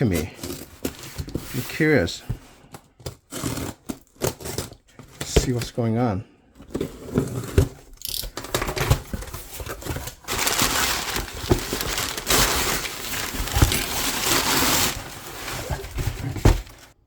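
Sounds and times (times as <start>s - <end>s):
packing material crinkling: 8.4s - 17.0s.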